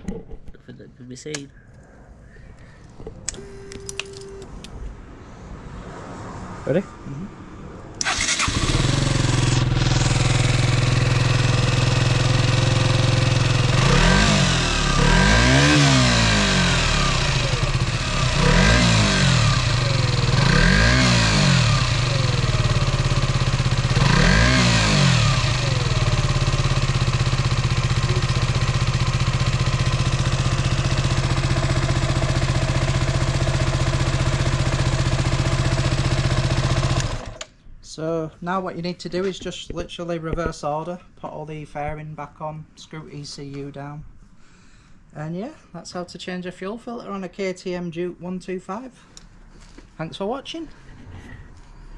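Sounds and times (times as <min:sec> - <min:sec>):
motorcycle engine starting and idling: 0:08.0 - 0:37.5.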